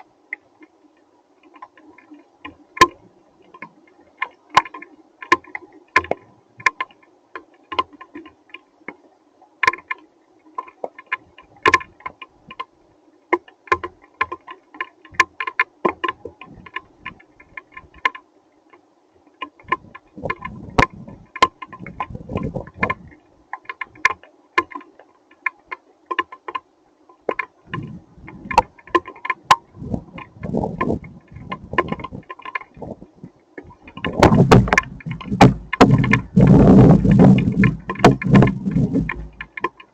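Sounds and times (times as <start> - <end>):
low rumbles: 34.0 - 39.6.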